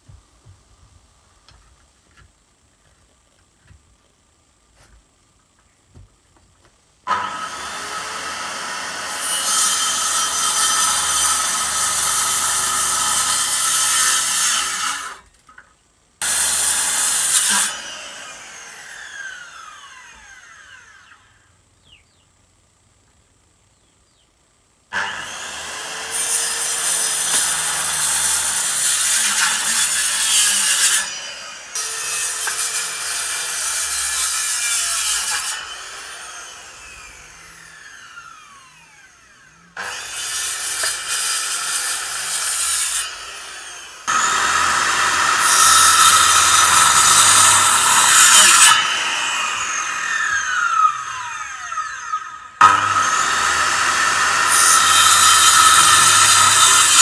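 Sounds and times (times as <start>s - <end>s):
power saw cutting wood: 7.1s - 15.2s, 16.2s - 21.4s, 24.9s - 57.0s
saw blade spinning down: 26.5s - 57.0s.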